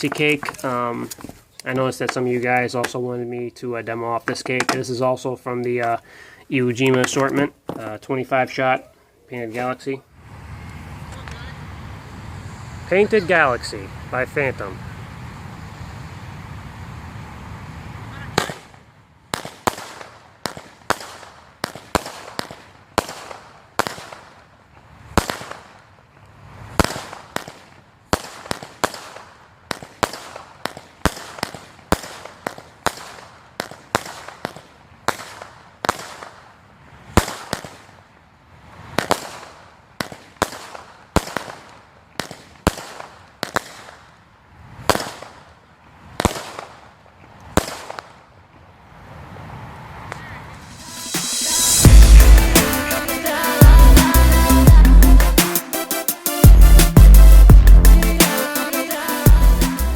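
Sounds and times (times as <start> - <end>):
firework cake shots with echoes: 18.4 - 24.4, 26.8 - 36.5, 50.7 - 59.9.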